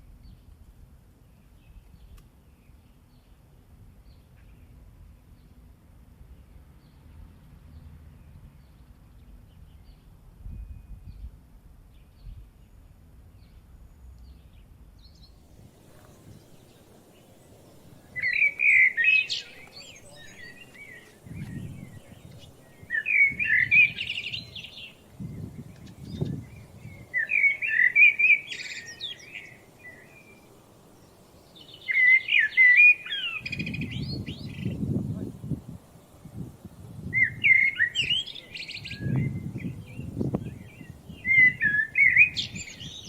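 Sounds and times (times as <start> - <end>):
bird chirping: 12.0 - 43.0.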